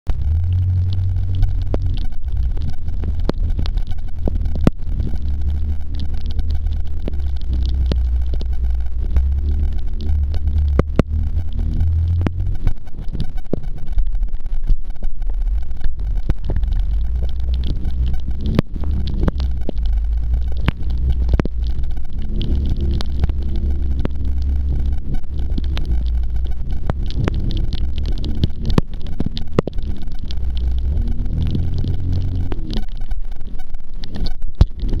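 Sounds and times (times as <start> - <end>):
jet ski engine rumble: 0.1 - 14.2.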